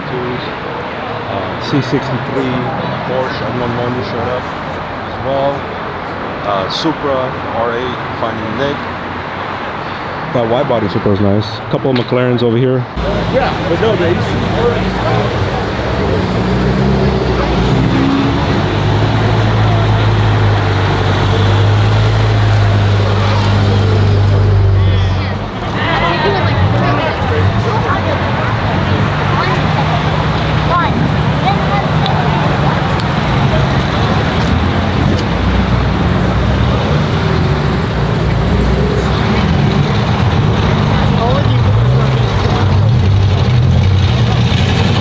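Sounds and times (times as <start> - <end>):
traffic noise: 0.0 - 45.0
car meet background noise: 12.9 - 45.0
car engine idling: 13.0 - 45.0.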